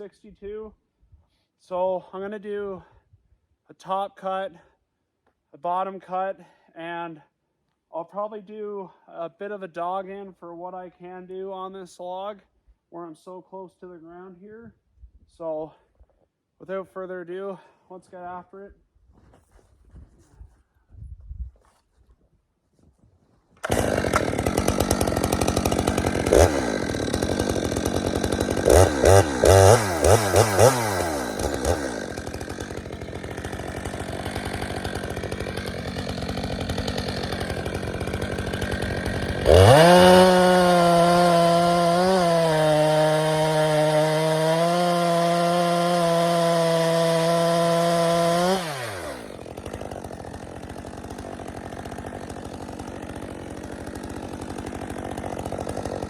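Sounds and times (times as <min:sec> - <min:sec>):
chainsaw revving: 0:23.6 - 0:56.0.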